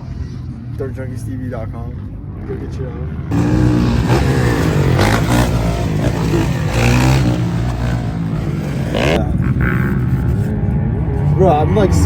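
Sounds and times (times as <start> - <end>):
dirt bike engine revving: 3.3 - 11.2.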